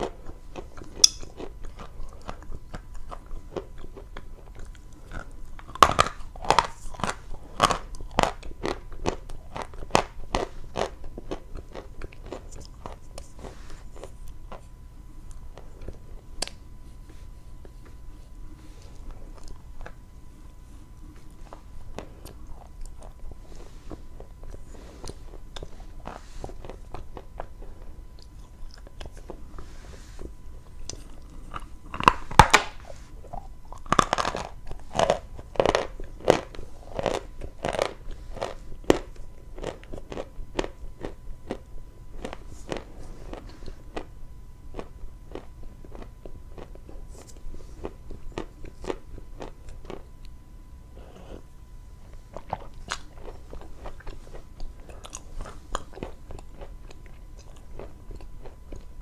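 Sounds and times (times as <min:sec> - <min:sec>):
chewing dry chalk crunches: 0:00.0 - 0:29.6, 0:30.2 - 0:44.1, 0:44.7 - 0:50.4, 0:52.0 - 0:59.0.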